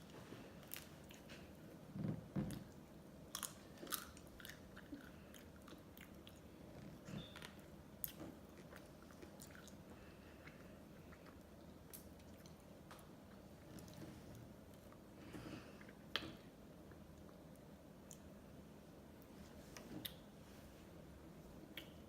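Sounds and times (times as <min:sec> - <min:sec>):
wet mouth clicks and smacks: 0:21.7 - 0:22.0.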